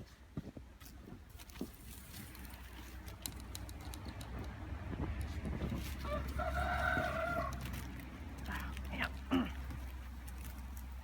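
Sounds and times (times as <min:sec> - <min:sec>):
rooster crowing: 0:06.0 - 0:07.7.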